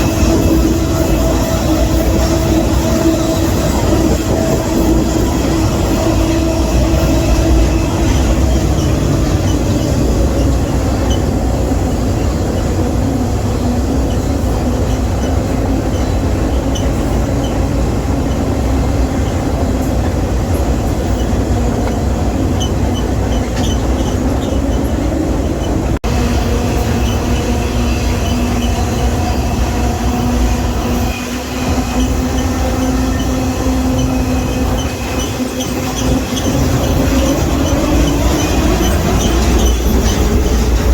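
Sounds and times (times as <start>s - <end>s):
whining tones: 0.0s - 13.0s
train wheels rumbling on rail: 0.0s - 40.9s.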